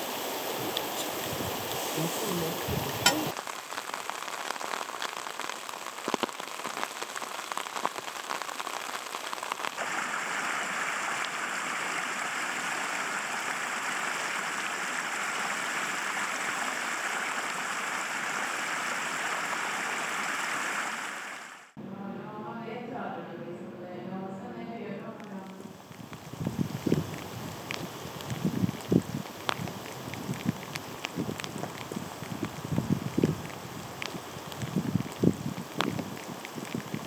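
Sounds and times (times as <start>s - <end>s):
rain hiss: 0.0s - 21.8s, 25.2s - 37.0s
raindrops ticking: 2.3s - 9.8s, 25.4s - 37.0s.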